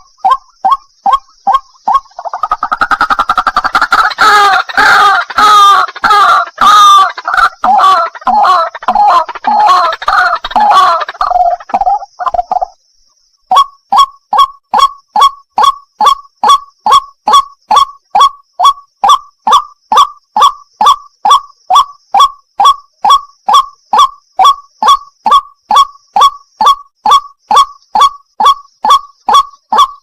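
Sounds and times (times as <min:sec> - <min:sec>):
waterhen calling wak notes: 0:00.0 - 0:12.8, 0:13.5 - 0:30.0.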